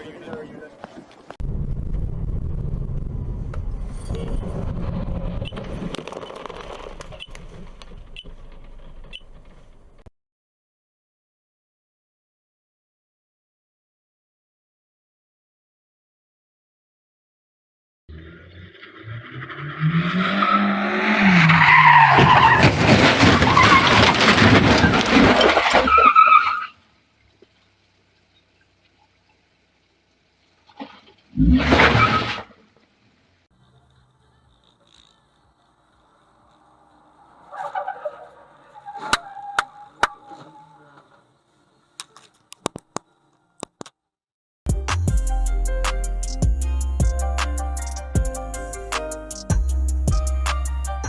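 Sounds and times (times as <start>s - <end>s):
car engine and road noise: 0.0s - 10.1s, 18.1s - 44.1s
tyres skidding: 3.4s - 10.1s, 18.1s - 43.6s.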